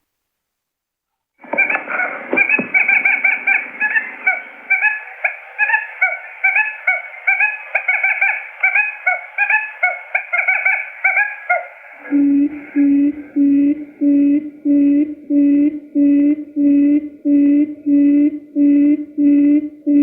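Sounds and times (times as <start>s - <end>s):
rising quail chirps: 1.4s - 13.5s
low flat hooting notes: 1.4s - 20.0s.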